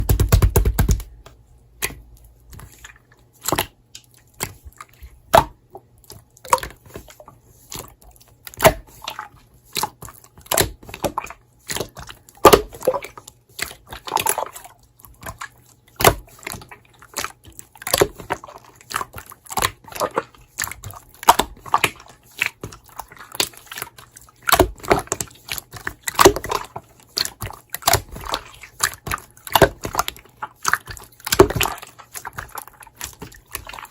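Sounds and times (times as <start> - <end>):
slime squishing wet clicks: 1.8 - 33.9.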